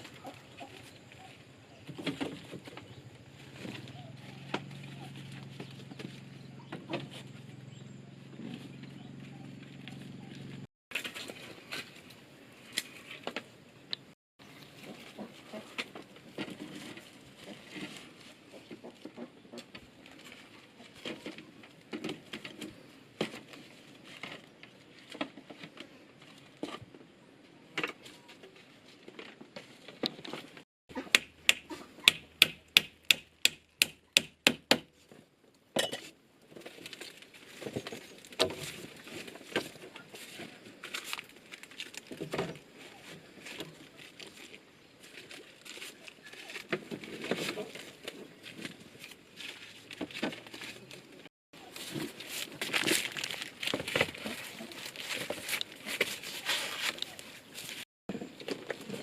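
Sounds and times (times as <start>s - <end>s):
rustling: 36.4s - 59.0s.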